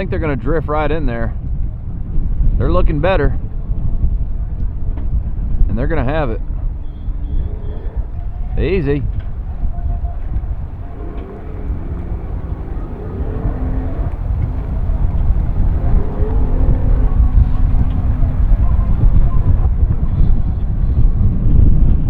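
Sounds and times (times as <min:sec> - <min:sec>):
wind rumble on microphone: 0:00.0 - 0:22.0
boat engine running: 0:07.3 - 0:21.2.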